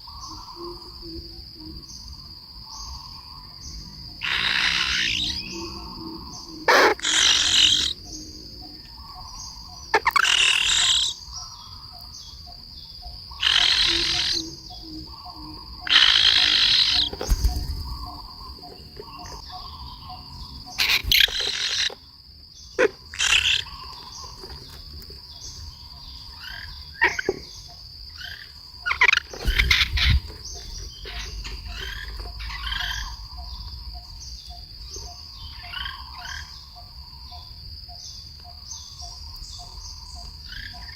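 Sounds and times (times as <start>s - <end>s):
high insect drone: 0.0s - 40.9s
harsh raspy bird calls: 4.2s - 12.4s, 13.3s - 34.3s.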